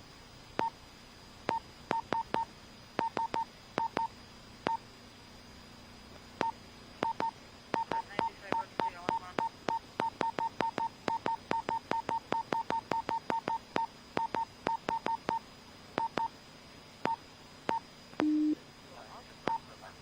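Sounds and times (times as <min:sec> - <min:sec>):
short electronic beeps: 0:17.1 - 0:18.6.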